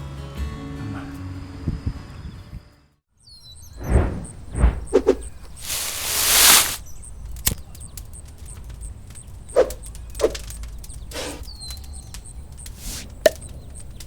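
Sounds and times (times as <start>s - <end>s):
rustling swish: 3.8s - 6.8s.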